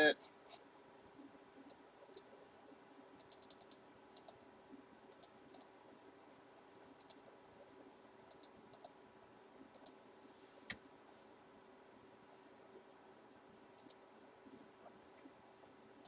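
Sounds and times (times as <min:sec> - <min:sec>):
computer keys clicking: 0:03.2 - 0:04.4, 0:05.1 - 0:05.7, 0:07.0 - 0:07.2, 0:08.3 - 0:09.0, 0:09.7 - 0:10.0, 0:13.8 - 0:14.0.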